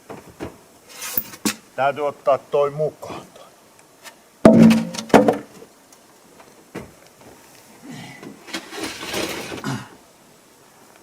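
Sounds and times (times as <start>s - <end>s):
scraping and rustling: 0.2s - 1.6s, 8.4s - 9.7s
loud knocks: 4.5s - 5.5s.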